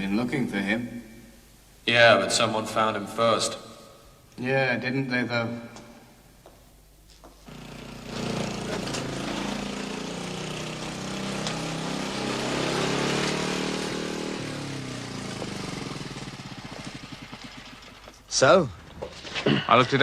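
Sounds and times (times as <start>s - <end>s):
vehicle engine running: 7.5s - 18.2s.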